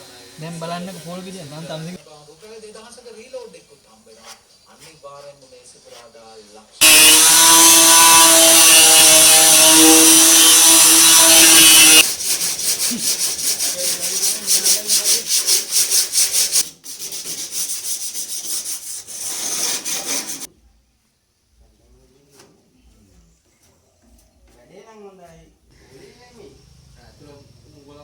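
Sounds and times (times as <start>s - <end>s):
power tool running: 6.8s - 12.1s
hand sanding with sandpaper: 6.8s - 20.5s.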